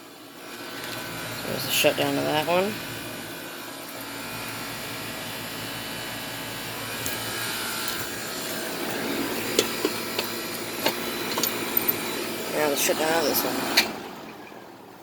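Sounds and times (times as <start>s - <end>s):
air conditioner unit humming: 0.0s - 15.0s.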